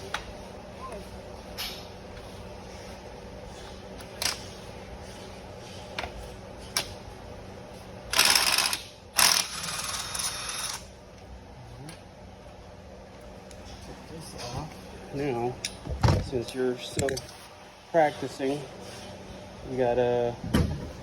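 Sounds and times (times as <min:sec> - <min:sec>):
ratchet clicking: 0:08.1 - 0:10.8.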